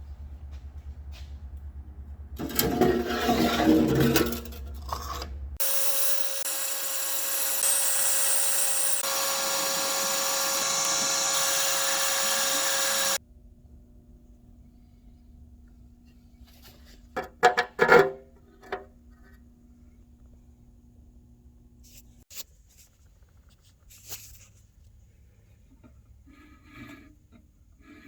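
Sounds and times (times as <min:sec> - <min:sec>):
power tool cutting metal: 0:05.6 - 0:13.2.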